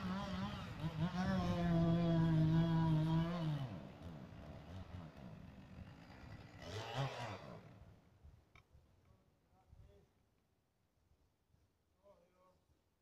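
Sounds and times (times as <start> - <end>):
chainsaw engine revving: 0.0 - 7.9.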